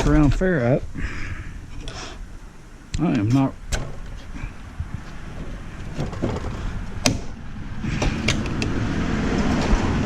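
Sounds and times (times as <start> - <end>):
low rumbling scrape: 4.2 - 10.0.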